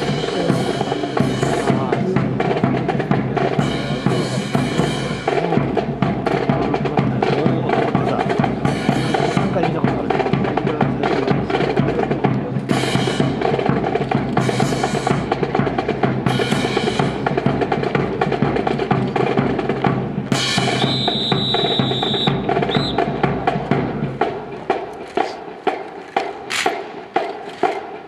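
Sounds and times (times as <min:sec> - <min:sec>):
bass drum: 0:00.0 - 0:25.4
snare rolls: 0:11.0 - 0:28.0.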